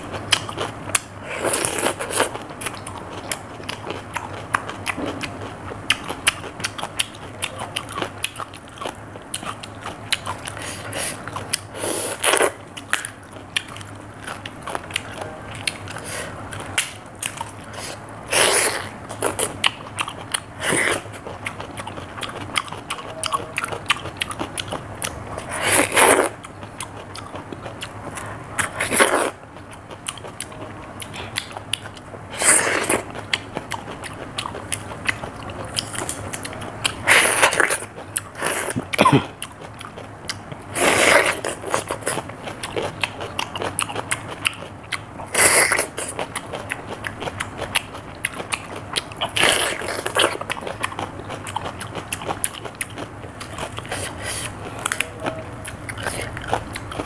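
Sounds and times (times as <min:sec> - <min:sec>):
crunchy cucumber chewing: 0:00.0 - 0:57.0.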